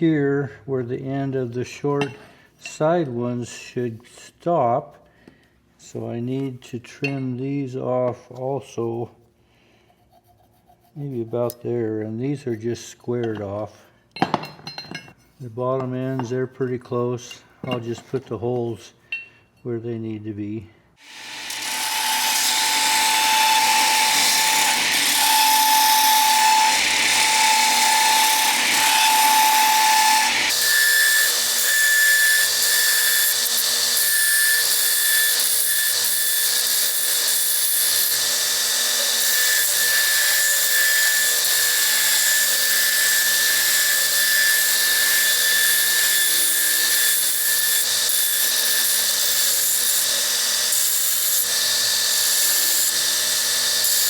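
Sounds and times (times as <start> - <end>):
electric drill whining: 21.0 - 36.6.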